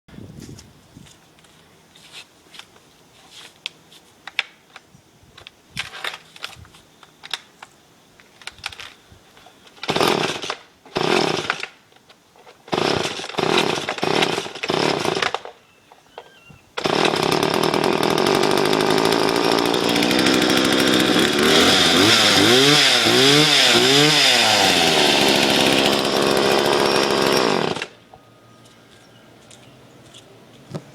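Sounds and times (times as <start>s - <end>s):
chainsaw engine running and revving: 16.8s - 27.9s.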